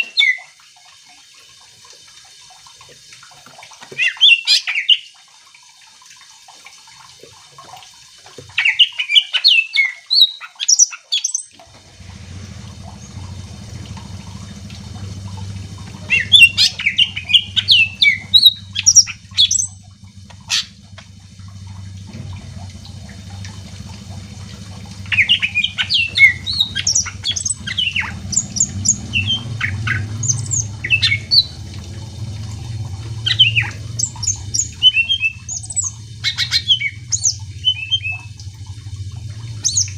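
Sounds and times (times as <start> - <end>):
bird chirping and whistling: 8.6 - 11.5, 16.0 - 19.8, 25.1 - 31.5, 33.2 - 38.3, 39.6 - 39.9
low steady hum: 11.6 - 39.9.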